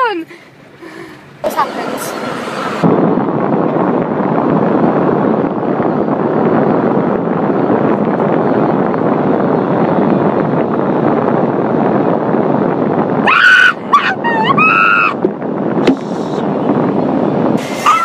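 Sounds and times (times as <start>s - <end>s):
car wash scrubbing and spraying: 1.4s - 3.0s, 17.5s - 18.0s
woman shrieking: 13.3s - 15.2s.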